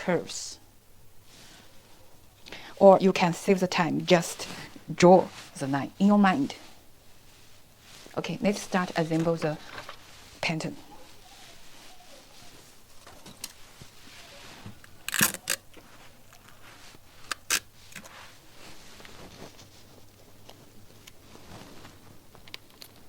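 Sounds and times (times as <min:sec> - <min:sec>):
paper rustling and crackling: 0:11.1 - 0:23.0.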